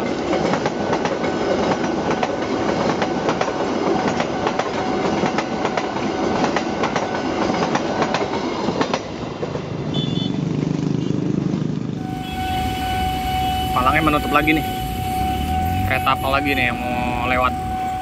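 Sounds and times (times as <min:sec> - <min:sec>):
train wheels clattering over rail joints: 0:00.0 - 0:09.7.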